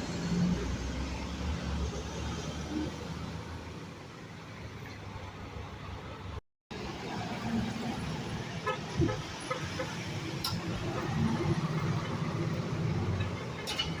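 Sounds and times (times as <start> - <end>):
truck engine rumbling: 6.8 - 14.0.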